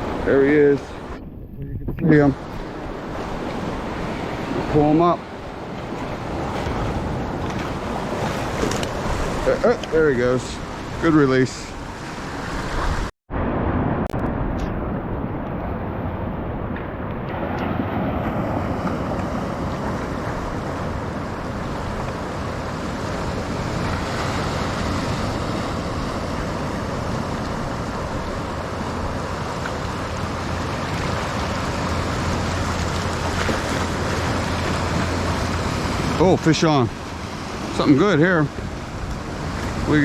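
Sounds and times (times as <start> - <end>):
surf washing against rocks: 0.0 - 1.2, 2.0 - 13.1, 17.2 - 40.0
wind on microphone: 0.0 - 10.0, 10.6 - 36.2.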